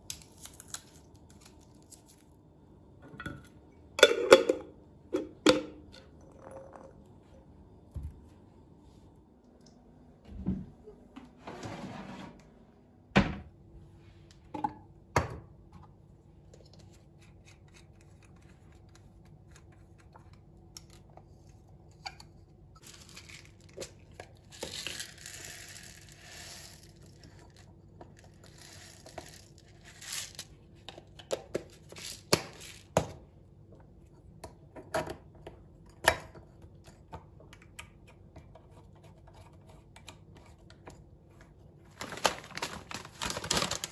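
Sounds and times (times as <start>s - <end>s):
faint steady hum: 0.0s - 43.9s
papery rustling: 41.9s - 43.9s.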